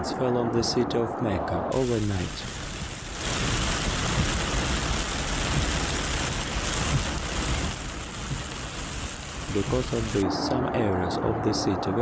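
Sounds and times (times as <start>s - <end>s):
heavy rain hiss: 1.7s - 10.2s
low rumble of traffic: 1.7s - 11.2s.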